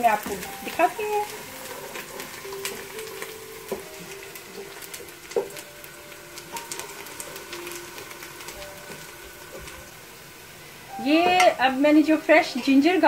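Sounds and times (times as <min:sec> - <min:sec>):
onions frying in oil: 0:00.0 - 0:13.0
wooden spoon scraping a pot: 0:00.2 - 0:05.6.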